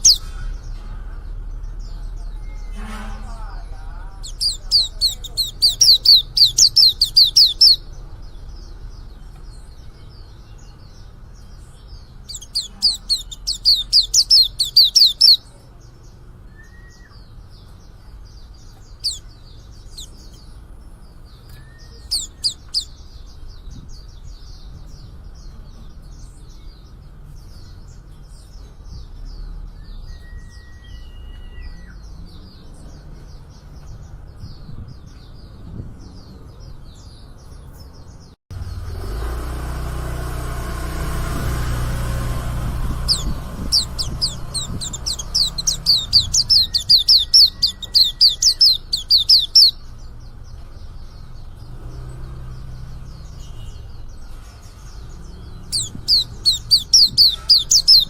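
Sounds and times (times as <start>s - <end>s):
high-pitched bird twittering: 0.0s - 0.7s, 3.3s - 8.7s, 11.9s - 15.6s, 18.7s - 20.6s, 21.3s - 25.1s, 42.6s - 49.9s, 54.9s - 58.0s
bird chirping: 0.0s - 40.1s, 40.8s - 58.0s
low bird whistles: 16.5s - 17.2s, 30.0s - 32.0s.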